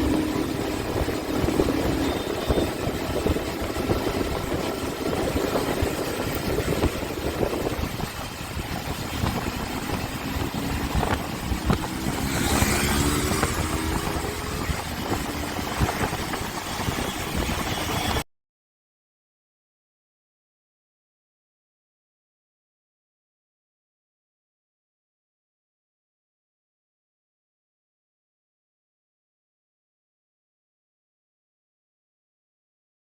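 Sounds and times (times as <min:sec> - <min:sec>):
motorcycle engine running: 0:00.0 - 0:18.2
road and wind noise: 0:00.0 - 0:18.2.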